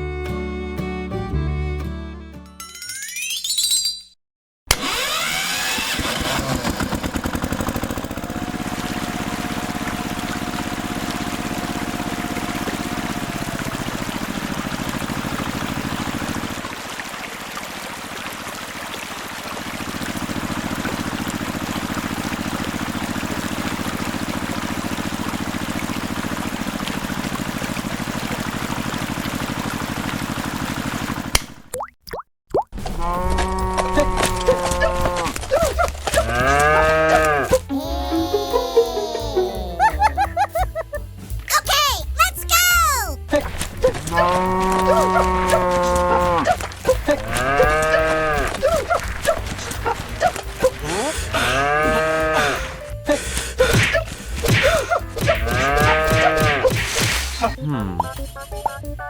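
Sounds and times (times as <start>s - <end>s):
small motor pulsing: 4.7s - 14.8s.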